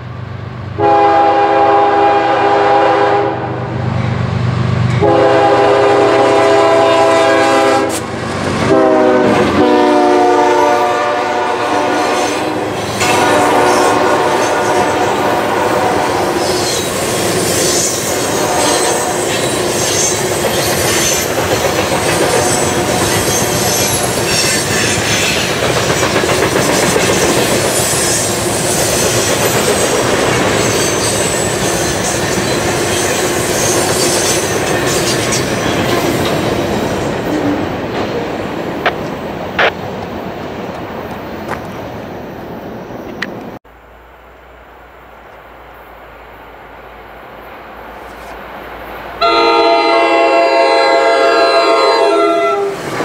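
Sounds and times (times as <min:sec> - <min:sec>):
locomotive horn blowing: 0:00.8 - 0:03.7, 0:05.0 - 0:08.1, 0:08.7 - 0:16.8, 0:17.8 - 0:20.1, 0:49.2 - 0:52.8
high wheel squeal: 0:16.3 - 0:21.4, 0:22.0 - 0:25.6, 0:26.7 - 0:35.5.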